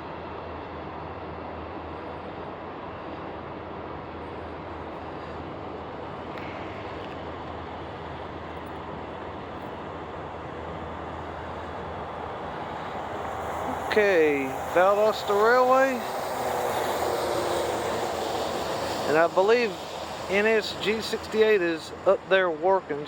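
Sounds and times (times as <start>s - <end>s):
low engine rumble: 0.0s - 23.0s
rain hiss: 9.1s - 23.0s.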